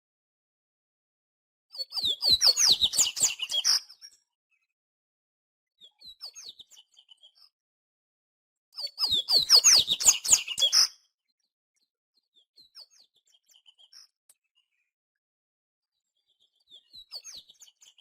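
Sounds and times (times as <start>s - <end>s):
bird chirps and twittering: 1.7s - 4.6s, 5.8s - 7.5s, 8.8s - 11.0s, 12.3s - 14.7s, 16.1s - 18.0s.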